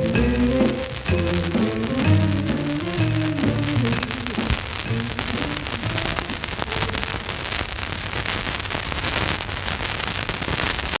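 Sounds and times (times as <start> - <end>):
faint music notes: 0.0 - 6.6
record surface hiss with crackles: 0.0 - 11.0.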